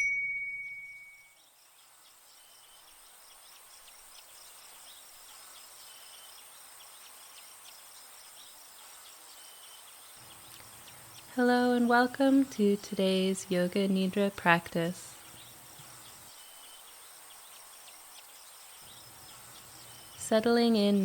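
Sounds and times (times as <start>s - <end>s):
bell-like chime: 0.0s - 1.4s
birds chirping: 1.3s - 21.0s
insects buzzing: 1.4s - 21.0s.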